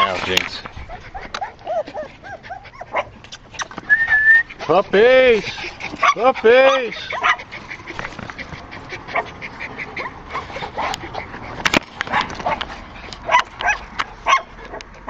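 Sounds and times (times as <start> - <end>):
puppies yipping and whimpering: 0.0 - 15.0.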